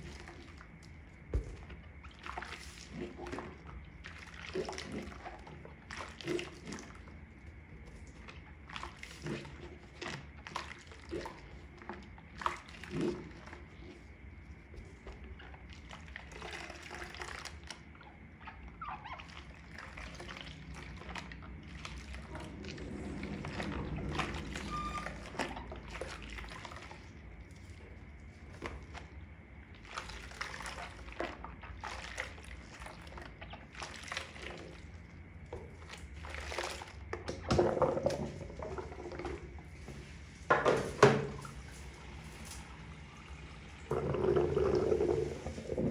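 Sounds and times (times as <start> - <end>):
water sloshing: 0.0 - 45.9
wet sponges squelching: 0.0 - 45.9
steady low hum: 19.5 - 45.9.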